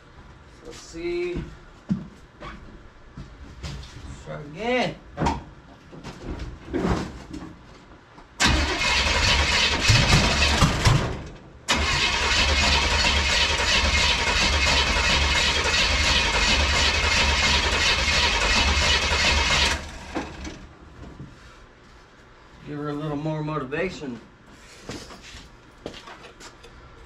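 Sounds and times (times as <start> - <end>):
engine cranking on starter: 8.4 - 20.7.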